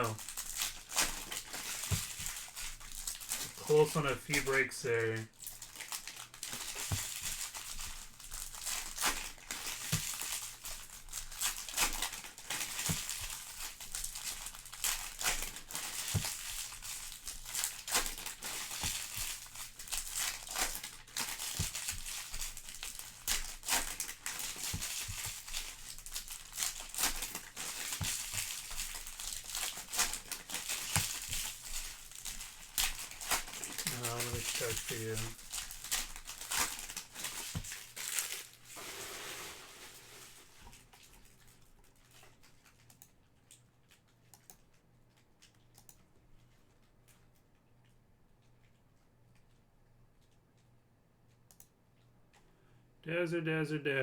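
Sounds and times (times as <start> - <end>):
foil wrappers crinkling and tearing: 0.0 - 44.1.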